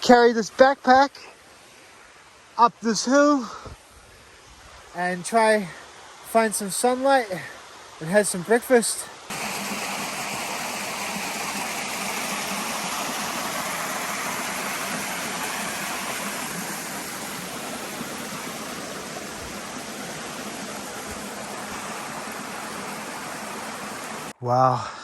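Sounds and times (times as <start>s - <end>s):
waterfall rushing: 5.0s - 24.4s.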